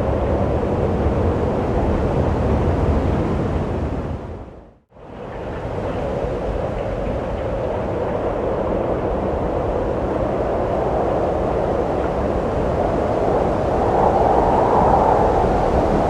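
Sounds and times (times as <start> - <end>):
wind rushing: 9.4 - 16.0.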